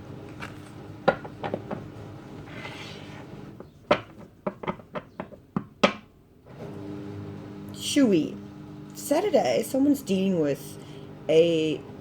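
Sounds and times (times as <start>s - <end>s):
cards sliding and rustling: 0.2s - 0.8s, 2.2s - 3.5s.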